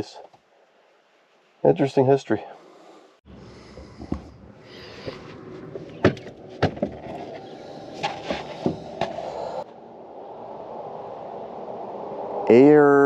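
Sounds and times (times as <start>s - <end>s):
steady faint hiss: 0.0s - 3.2s.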